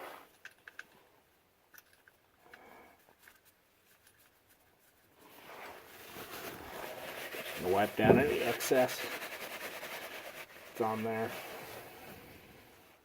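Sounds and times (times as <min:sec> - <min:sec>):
small handling noises: 0:00.0 - 0:13.0
faint metal clicks: 0:00.3 - 0:01.0.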